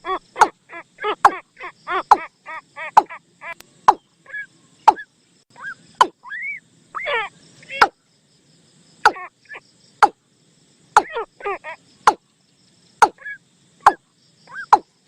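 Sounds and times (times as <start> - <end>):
falling chattering bird calls: 0.0 - 8.0, 11.0 - 15.0.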